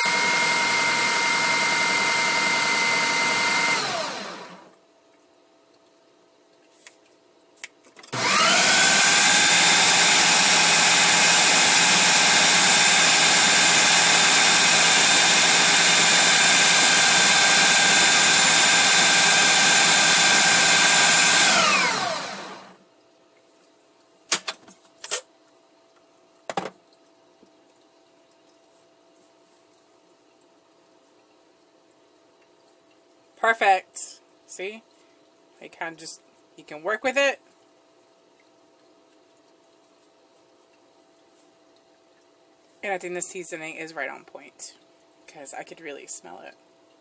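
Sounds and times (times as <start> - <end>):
food processor motor grinding: 0.0 - 4.7, 8.1 - 22.8.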